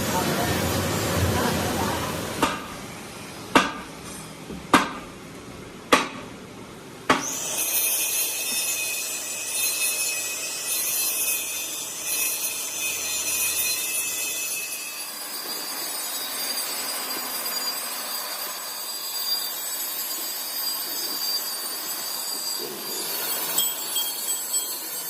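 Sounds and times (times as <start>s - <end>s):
power tool high-pitched whine: 7.2s - 25.0s.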